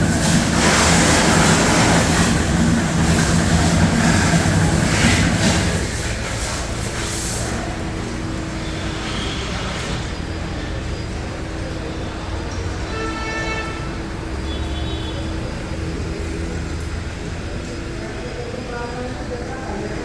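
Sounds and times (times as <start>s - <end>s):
motor humming: 0.0s - 6.9s
water jet hissing: 0.0s - 20.0s.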